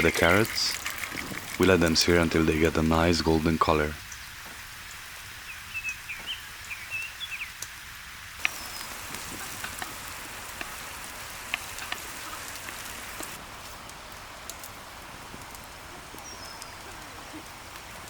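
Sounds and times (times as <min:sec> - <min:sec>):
birds chirping: 0:00.0 - 0:04.4, 0:05.4 - 0:07.6
carrots sizzling in hot oil: 0:04.1 - 0:13.8.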